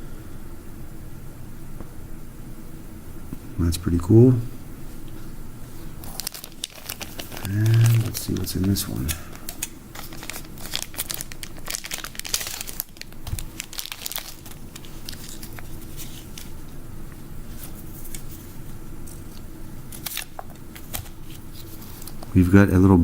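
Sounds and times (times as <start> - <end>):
packaging crinkling and tearing: 6.0 - 16.7, 17.5 - 22.4.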